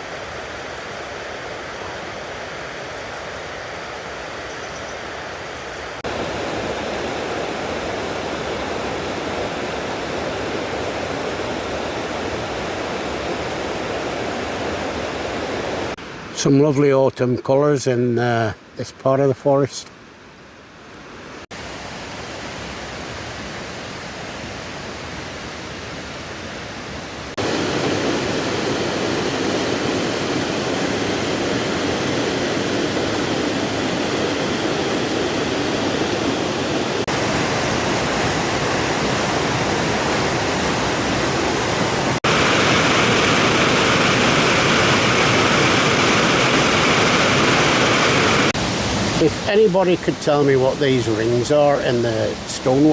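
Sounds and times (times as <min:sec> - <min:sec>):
waterfall rushing: 0:05.5 - 0:16.5, 0:21.6 - 0:52.9.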